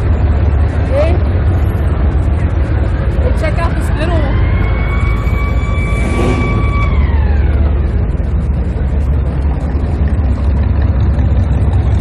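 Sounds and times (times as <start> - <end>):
low engine rumble: 0.0 - 12.0
siren falling in pitch: 4.3 - 8.0.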